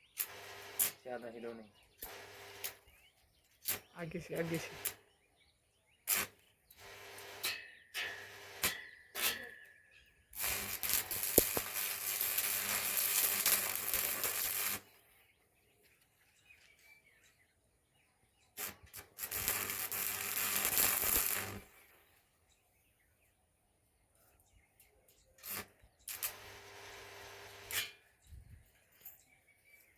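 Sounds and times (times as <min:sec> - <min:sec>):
welding machine hum: 0:00.1 - 0:01.0, 0:02.0 - 0:02.8, 0:06.1 - 0:07.6, 0:08.2 - 0:08.8, 0:10.4 - 0:15.0, 0:18.6 - 0:21.8, 0:25.4 - 0:27.9
welding arc crackling and hissing: 0:00.2 - 0:01.0, 0:06.1 - 0:06.3, 0:10.4 - 0:15.0, 0:18.6 - 0:21.8, 0:25.4 - 0:27.9.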